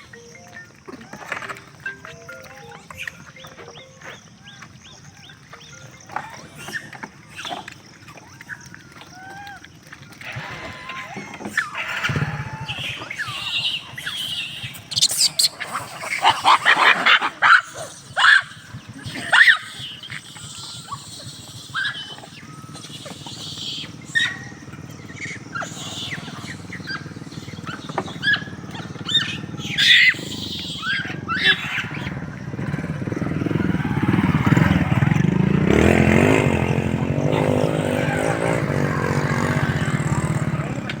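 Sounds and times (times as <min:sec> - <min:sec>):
motor vehicle engine: 0:10.3 - 0:41.0.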